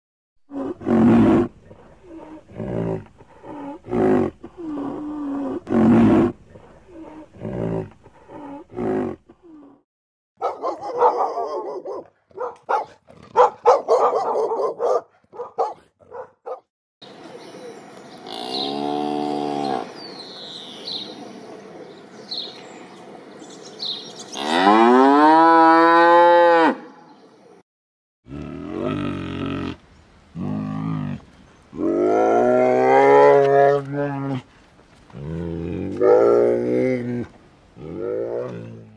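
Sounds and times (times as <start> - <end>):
birds chirping: 10.4 - 25.0
cow mooing: 18.3 - 19.9, 24.3 - 26.8.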